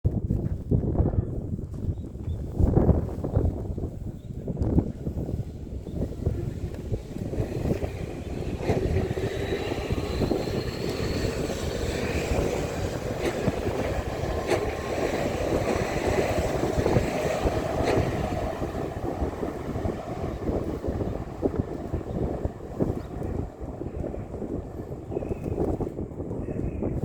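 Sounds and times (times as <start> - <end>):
low train rumble: 0.9 - 27.0
wheels clicking over rail joints: 4.5 - 27.0
electric train motors whining: 5.8 - 25.5.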